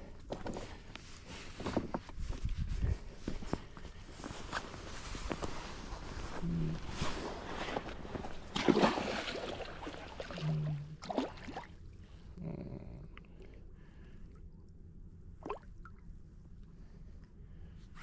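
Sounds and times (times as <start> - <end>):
water splashing: 8.5 - 11.8.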